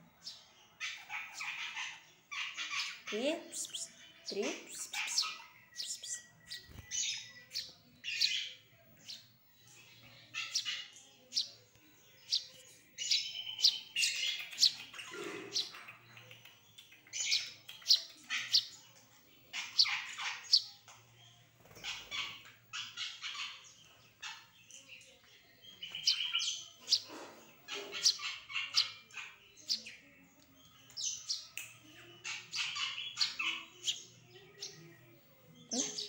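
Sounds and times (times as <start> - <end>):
pet bird high chirps: 0.2 - 36.0.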